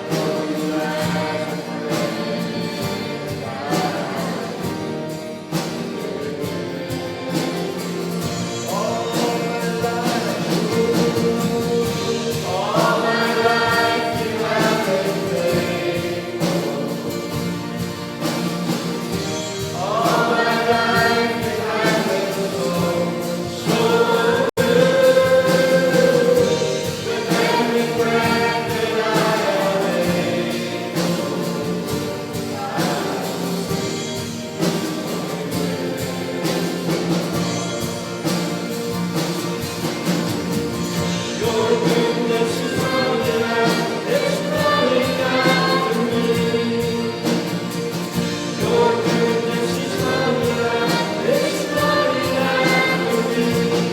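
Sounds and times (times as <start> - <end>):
instrumental accompaniment: 0.0 - 53.9
voices singing a gospel song: 0.0 - 53.9.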